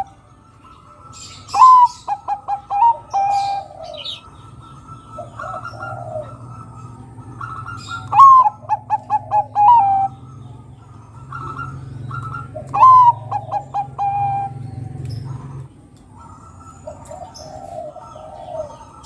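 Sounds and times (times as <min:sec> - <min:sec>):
dove cooing: 0:00.0 - 0:19.0
soft bird calls: 0:00.0 - 0:19.0.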